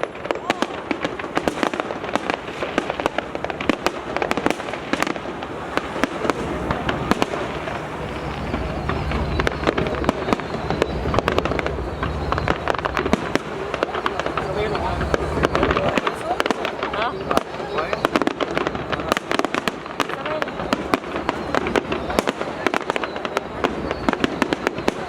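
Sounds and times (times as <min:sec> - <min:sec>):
fireworks bangs and crackles: 0:00.0 - 0:25.0
low rumble: 0:05.9 - 0:16.1.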